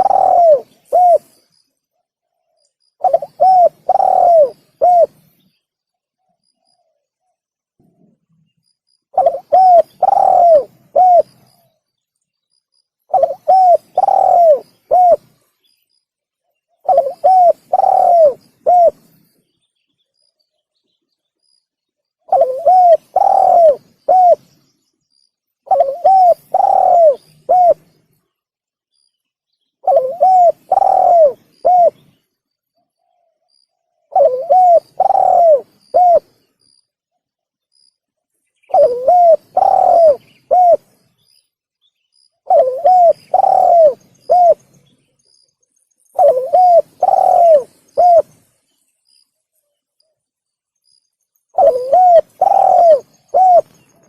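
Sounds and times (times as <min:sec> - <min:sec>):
dove cooing: 0:00.0 - 0:01.4, 0:03.0 - 0:05.3, 0:09.1 - 0:11.7, 0:13.1 - 0:15.4, 0:16.8 - 0:19.1, 0:22.3 - 0:24.6, 0:25.6 - 0:27.9, 0:29.8 - 0:32.2, 0:34.1 - 0:36.4, 0:38.7 - 0:40.9, 0:42.4 - 0:44.7, 0:46.2 - 0:48.4, 0:51.5 - 0:53.8.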